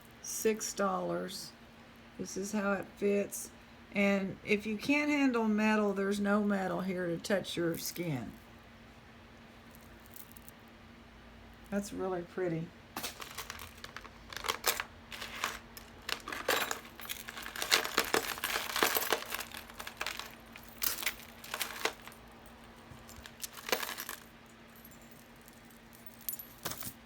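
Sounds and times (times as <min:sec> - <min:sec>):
beads and chain clattering: 0:09.7 - 0:10.5, 0:13.0 - 0:27.0.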